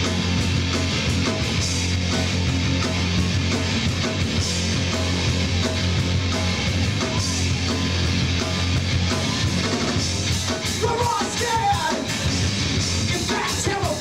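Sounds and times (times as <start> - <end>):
live rock band playing: 0.0 - 14.0
person shouting or singing: 10.8 - 12.1, 13.1 - 14.0.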